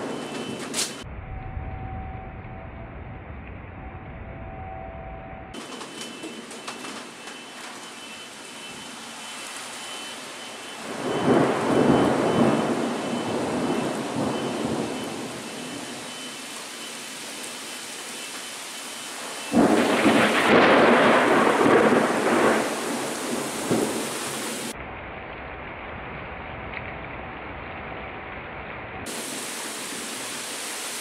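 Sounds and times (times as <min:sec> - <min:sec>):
thunder rumbling: 0:00.0 - 0:07.2, 0:10.8 - 0:16.2, 0:19.2 - 0:29.2
rain: 0:00.0 - 0:31.0
thunder clap: 0:10.8 - 0:15.3, 0:19.5 - 0:24.1.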